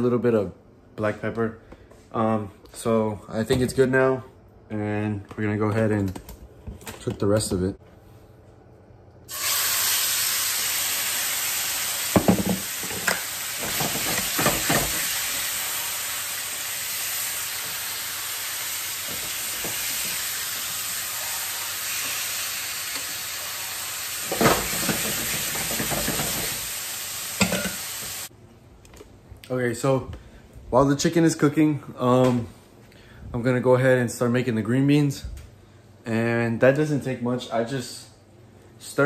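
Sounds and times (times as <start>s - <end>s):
chicken sizzling in a frying pan: 9.3s - 28.3s.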